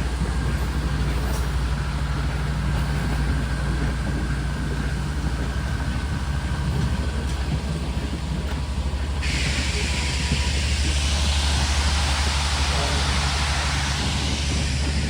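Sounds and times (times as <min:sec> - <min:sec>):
locomotive engine idling: 0:00.0 - 0:15.0.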